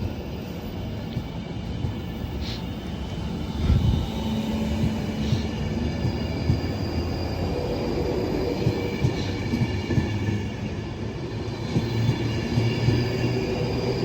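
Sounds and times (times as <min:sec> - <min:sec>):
train rumble: 0:00.0 - 0:14.0
train wheels knocking over rails: 0:03.7 - 0:10.4.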